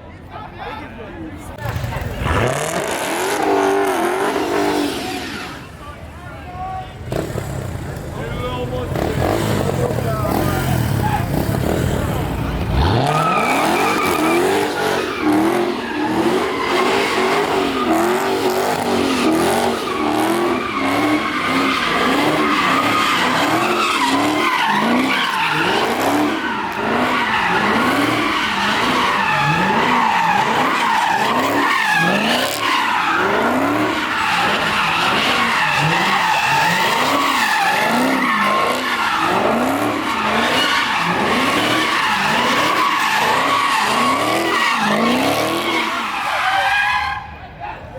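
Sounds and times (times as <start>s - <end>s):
car engine revving: 1.5s - 5.9s, 7.0s - 46.6s
tyre squeal: 12.8s - 47.4s.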